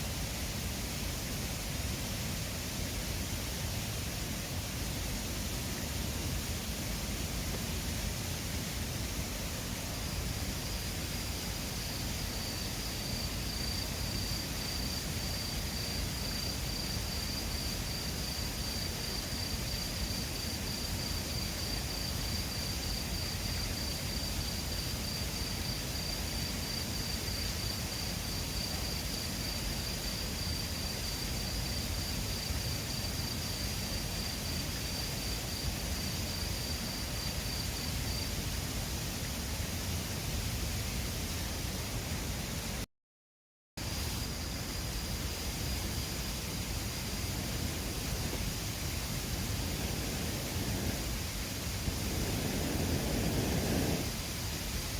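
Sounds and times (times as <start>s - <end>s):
river rushing: 46.6s - 54.5s.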